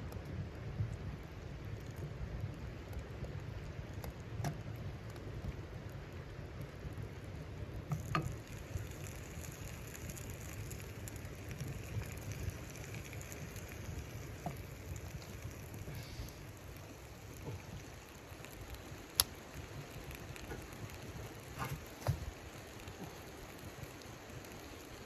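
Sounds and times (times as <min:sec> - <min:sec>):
snow pattering on tent fabric: 0:08.4 - 0:25.0.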